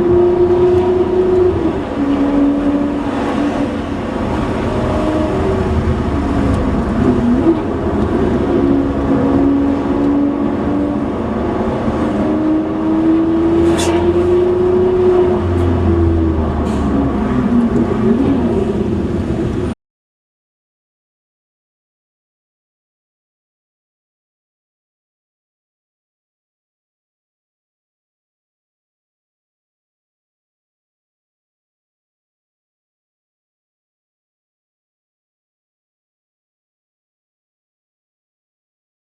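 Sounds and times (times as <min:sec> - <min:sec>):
car engine running: 0:00.1 - 0:19.7.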